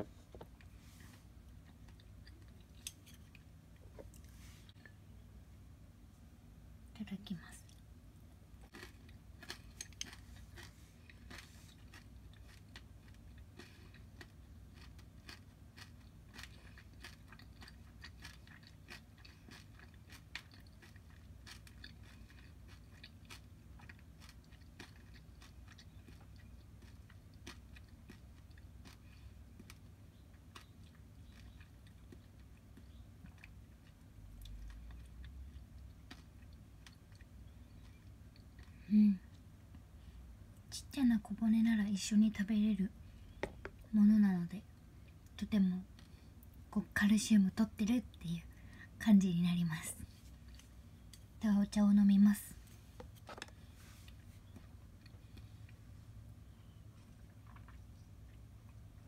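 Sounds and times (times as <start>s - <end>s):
low steady hum: 0.0s - 59.0s
chewing and crisp crunching: 8.6s - 39.8s, 56.7s - 59.0s.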